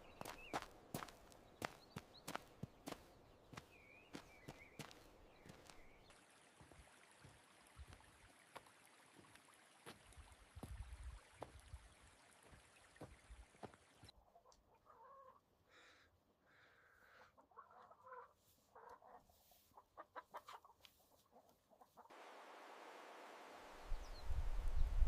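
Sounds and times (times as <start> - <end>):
chickens clucking: 14.1 - 15.5, 17.1 - 22.1.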